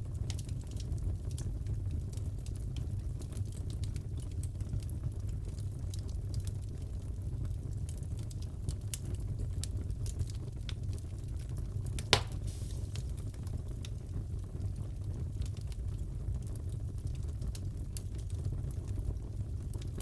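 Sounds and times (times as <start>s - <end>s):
fire crackling: 0.0s - 20.0s
fire rumbling: 0.0s - 20.0s
loud pop from fire: 12.0s - 13.4s.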